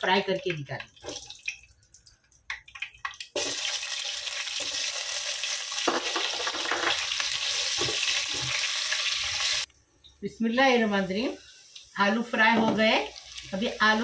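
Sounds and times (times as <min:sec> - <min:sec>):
potatoes sizzling in hot oil: 0:03.3 - 0:09.7, 0:10.6 - 0:14.0.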